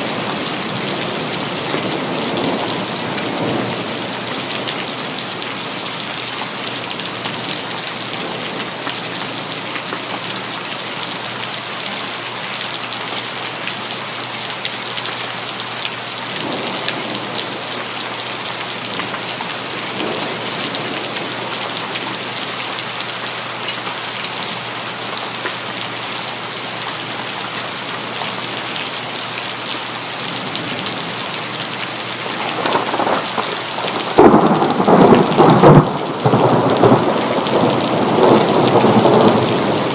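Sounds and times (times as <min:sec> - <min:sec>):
rain falling: 0:00.0 - 0:39.9
thunder rumbling: 0:32.2 - 0:39.9.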